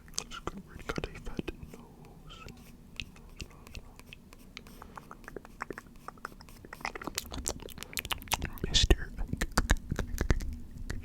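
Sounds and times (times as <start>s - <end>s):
mouth clicks and smacks: 0.0s - 11.0s.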